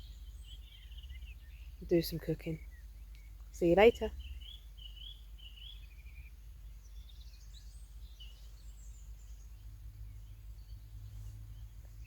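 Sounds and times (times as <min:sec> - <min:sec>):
songbirds chirping and trilling: 0:00.0 - 0:12.0
low steady rumble: 0:06.0 - 0:12.0.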